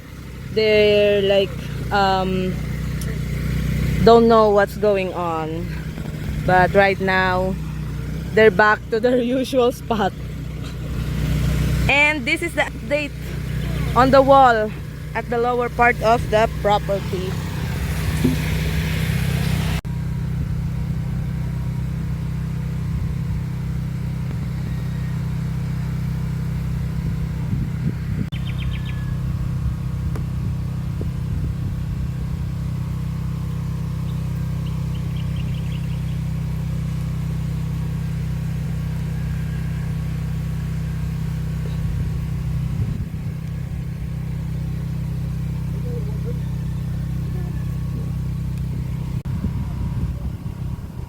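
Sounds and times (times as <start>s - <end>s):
engine droning: 0.0s - 51.0s
bird chirps: 28.3s - 29.3s, 34.0s - 36.4s, 41.6s - 41.9s.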